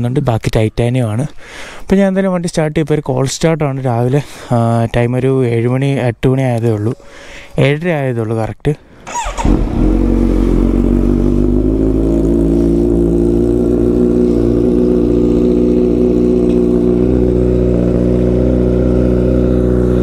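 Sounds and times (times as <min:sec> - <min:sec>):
motorcycle engine idling: 0:09.1 - 0:20.0.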